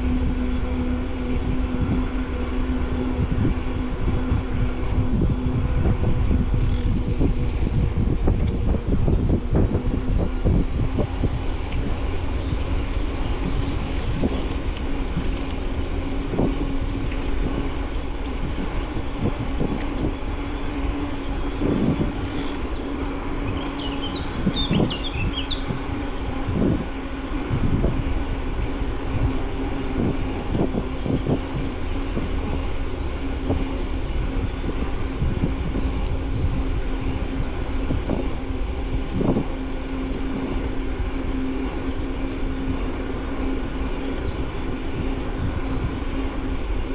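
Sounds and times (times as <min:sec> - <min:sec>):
bicycle tyre noise: 0:00.0 - 0:46.9
wind rumble on microphone: 0:00.0 - 0:46.9.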